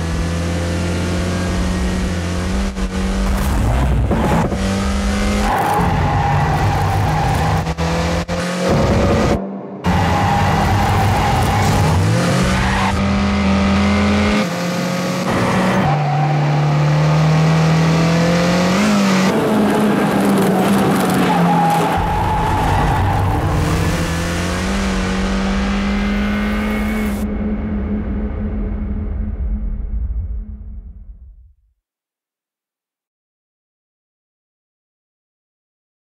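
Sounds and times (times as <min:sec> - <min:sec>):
car engine revving high: 0:00.0 - 0:28.0.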